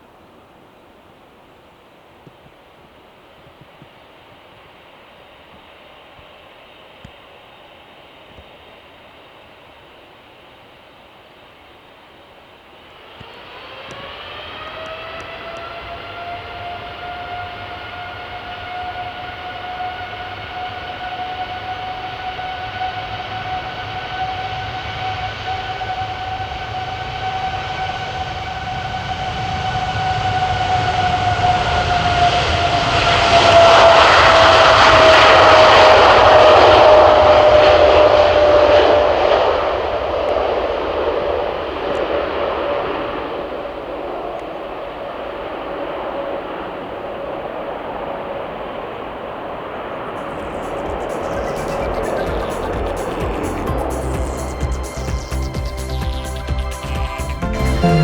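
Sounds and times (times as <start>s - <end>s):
jet airliner engines passing: 12.6s - 58.0s.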